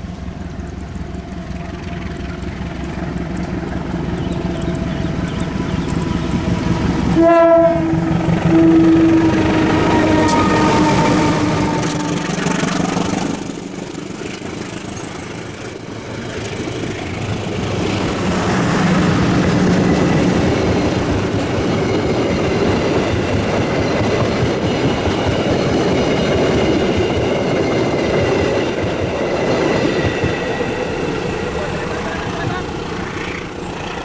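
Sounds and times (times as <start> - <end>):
train wheels clattering over rails: 0.0 - 34.0
thin high wheel squeal: 7.2 - 18.1.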